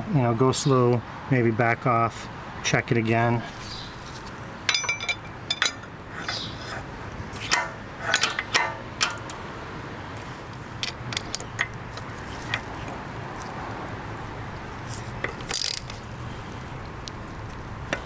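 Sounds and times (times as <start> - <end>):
metallic clicks of hand tools: 7.5 - 9.4, 15.2 - 16.0.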